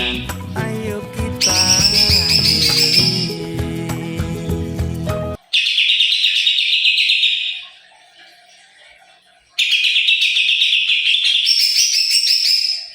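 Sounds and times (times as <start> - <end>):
songbird trilling and chattering: 1.4 - 3.4, 5.6 - 7.6, 9.6 - 12.9.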